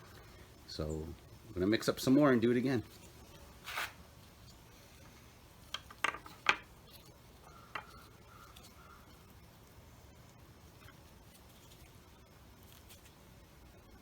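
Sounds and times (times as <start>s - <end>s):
soft rubbing on bench: 2.8s - 5.4s.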